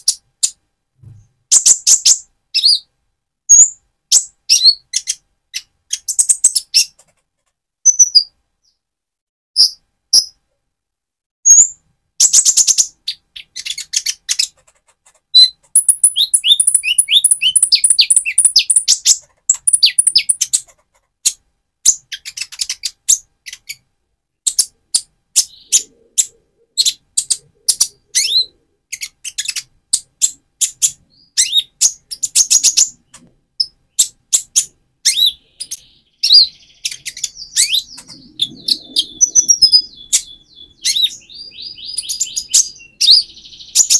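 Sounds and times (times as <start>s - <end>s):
sunbird chirping and twittering: 15.3s - 20.7s, 24.4s - 43.9s.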